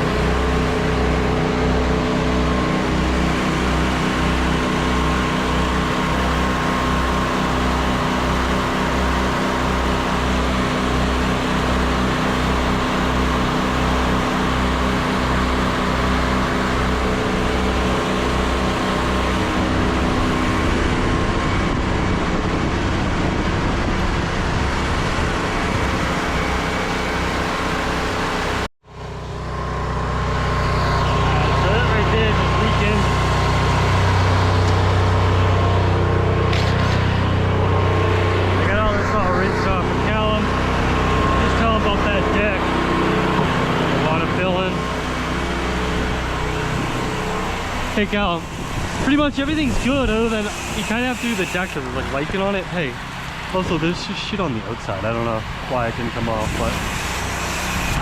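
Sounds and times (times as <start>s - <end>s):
pressure washer engine throbbing: 0.0s - 58.0s
water spray hissing: 49.6s - 51.9s, 56.4s - 58.0s.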